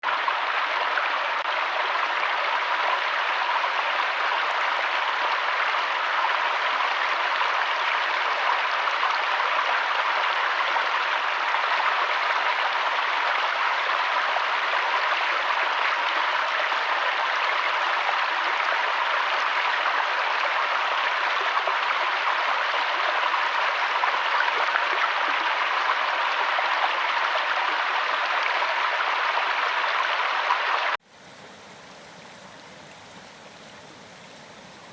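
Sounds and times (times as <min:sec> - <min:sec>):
running water rushing: 0:29.2 - 0:34.9.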